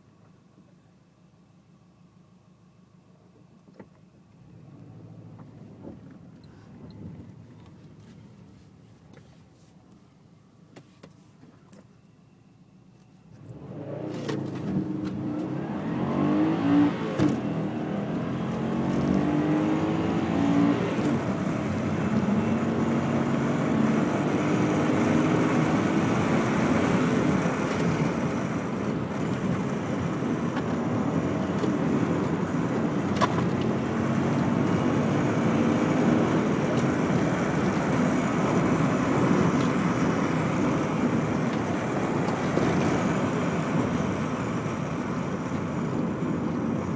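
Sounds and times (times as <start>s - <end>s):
road noise: 13.3s - 46.9s
car engine accelerating hard: 13.4s - 46.9s.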